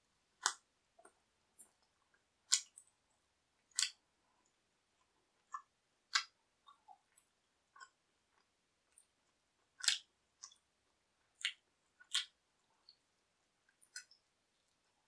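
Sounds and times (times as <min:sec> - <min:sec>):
person chewing with wet smacks: 0:00.4 - 0:02.9, 0:05.0 - 0:10.7, 0:11.3 - 0:14.7.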